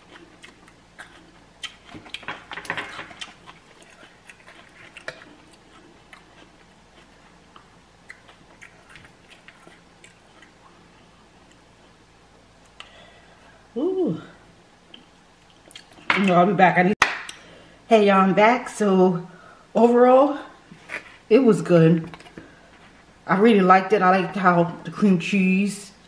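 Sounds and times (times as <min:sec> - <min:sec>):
chewing crunchy chips: 0:00.0 - 0:12.0.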